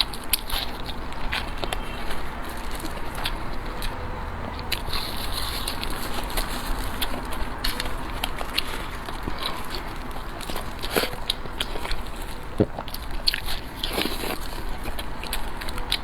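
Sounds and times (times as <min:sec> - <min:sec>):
person biting and chewing food: 0:00.0 - 0:16.0.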